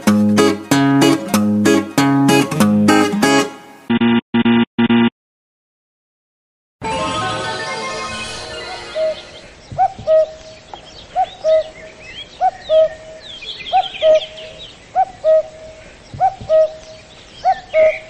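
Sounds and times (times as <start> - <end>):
cuckoo calling: 7.5 - 18.0
small birds chirping: 8.9 - 18.0.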